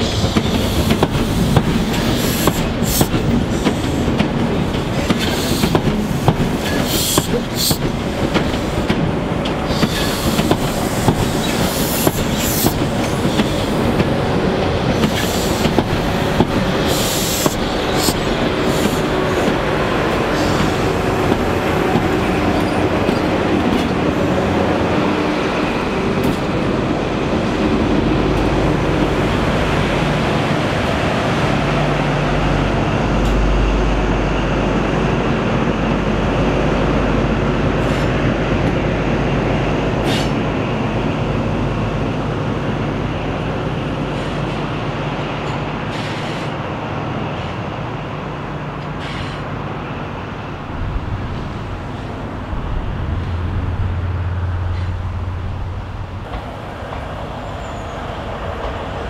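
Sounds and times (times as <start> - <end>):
train wheels clicking over rail joints: 0.0 - 24.2
diesel engine drone: 49.8 - 57.5.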